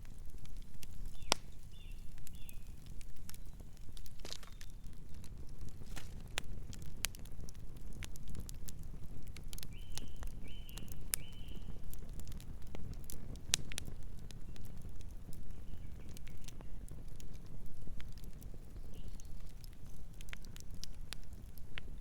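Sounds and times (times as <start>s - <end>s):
campfire crackling: 0.0s - 22.0s
bird chirping: 1.1s - 2.8s.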